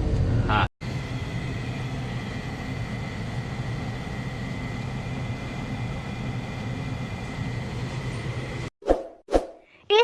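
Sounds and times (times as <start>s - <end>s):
blower humming with rushing air: 0.0s - 8.7s
thin high whine: 0.8s - 8.7s.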